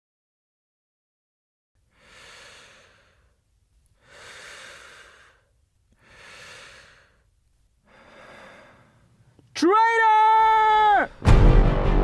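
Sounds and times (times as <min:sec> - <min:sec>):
slow heavy breathing: 0:01.8 - 0:09.5.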